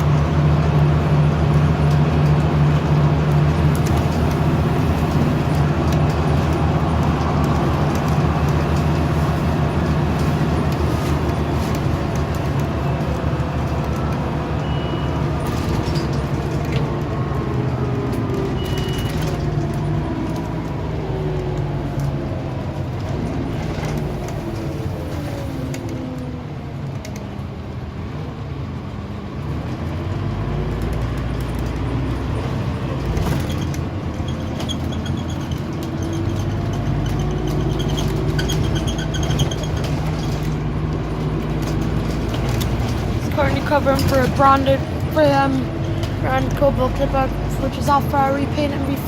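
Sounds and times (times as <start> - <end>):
bus diesel engine drone: 0.0 - 49.0
road noise: 0.0 - 49.0
short high beeps: 14.6 - 15.2, 18.6 - 19.2.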